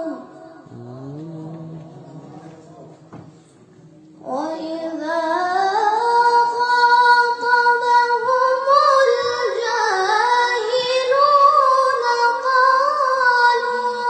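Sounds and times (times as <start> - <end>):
girl reciting melodically: 0.0 - 0.7, 4.1 - 14.0.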